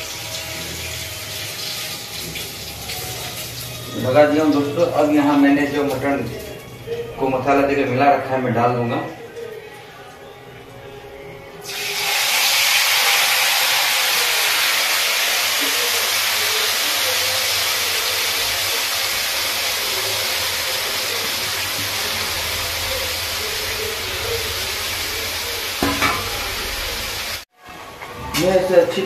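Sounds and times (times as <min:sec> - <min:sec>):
meat sizzling in hot oil: 0:00.0 - 0:06.3, 0:11.6 - 0:27.5.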